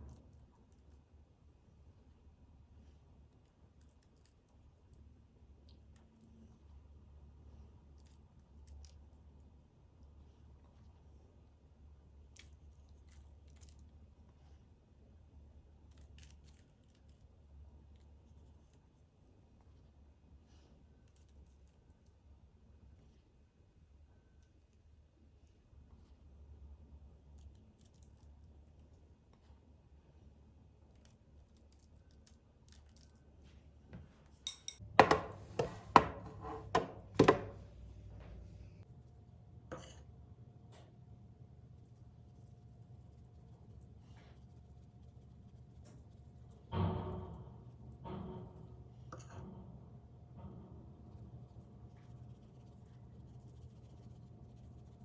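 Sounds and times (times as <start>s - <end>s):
objects knocking and clattering: 34.5s - 37.7s
low hum: 34.5s - 55.0s.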